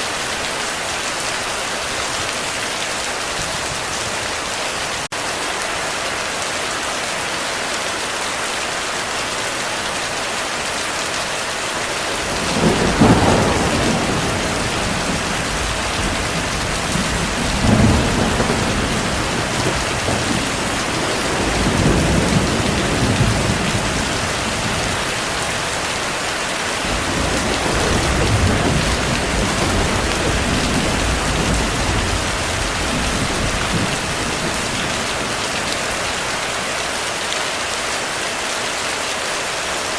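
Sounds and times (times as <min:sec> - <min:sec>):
heavy rain: 0:00.0 - 0:39.9
thunder rumbling: 0:12.0 - 0:26.1, 0:26.8 - 0:36.4.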